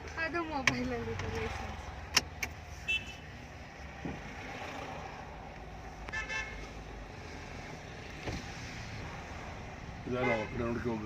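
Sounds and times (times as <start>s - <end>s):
car engine and road rumble: 0.0s - 11.0s
vehicle horn toot: 2.8s - 3.3s, 6.1s - 6.6s, 10.1s - 10.7s.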